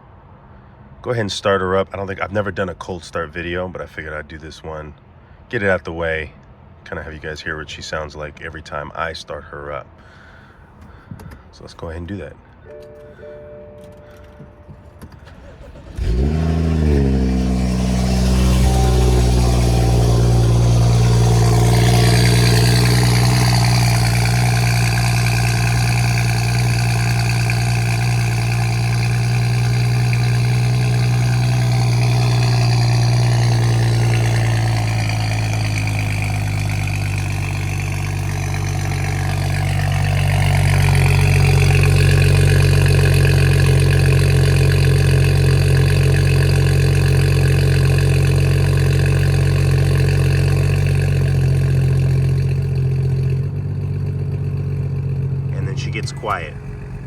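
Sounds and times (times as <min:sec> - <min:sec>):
car engine cold start and idle: 0:12.6 - 0:57.0.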